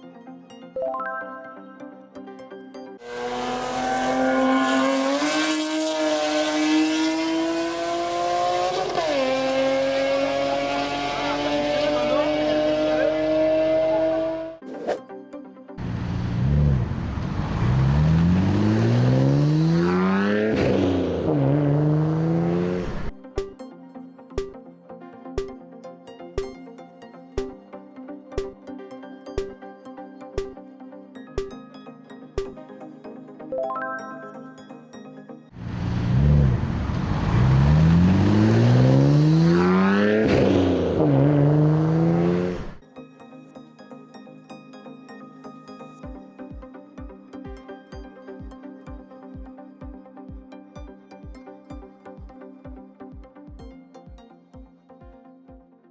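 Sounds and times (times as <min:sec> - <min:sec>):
sports car engine revving: 0:03.0 - 0:14.6, 0:15.8 - 0:23.1, 0:35.6 - 0:42.8
electronic music with ticking beat: 0:23.1 - 0:35.1, 0:45.6 - 0:55.7.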